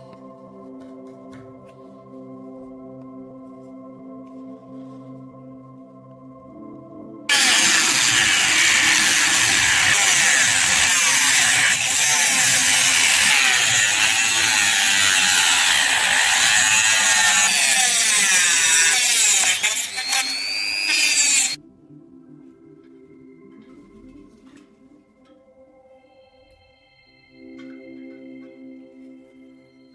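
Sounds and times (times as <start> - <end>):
power tool grinding steel: 7.3 - 21.6.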